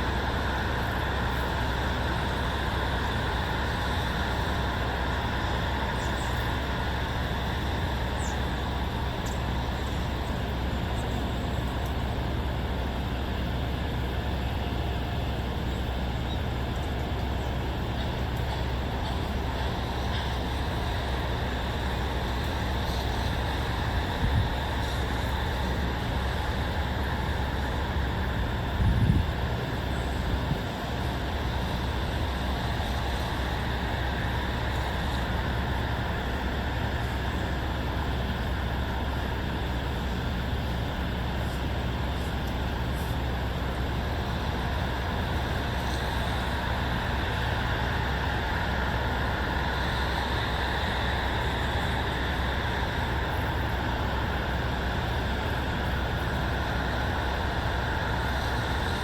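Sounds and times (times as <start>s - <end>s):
low outdoor rumble: 0.0s - 59.0s.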